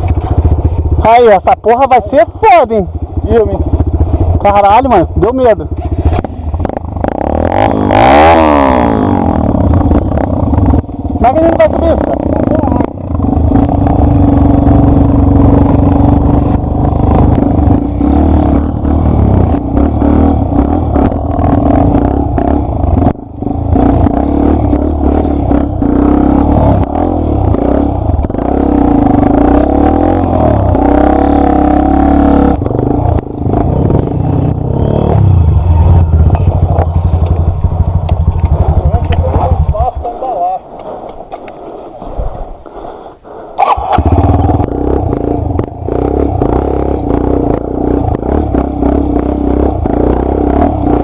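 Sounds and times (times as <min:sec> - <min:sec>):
dirt bike engine revving: 0:00.0 - 0:41.0, 0:43.2 - 0:51.0.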